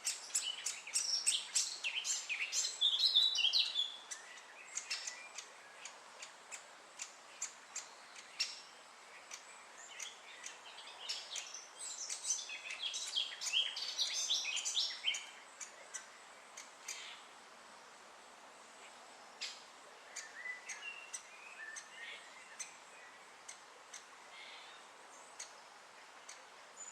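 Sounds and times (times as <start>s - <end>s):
woodpecker calling: 0.0s - 17.3s, 18.8s - 22.8s.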